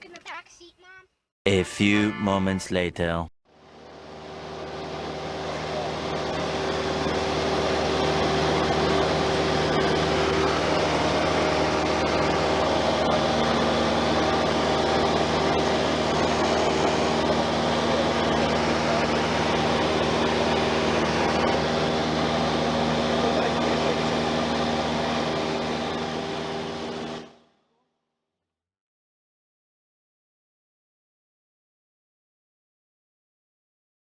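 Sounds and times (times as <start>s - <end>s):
light aircraft engine drone: 3.5s - 27.4s.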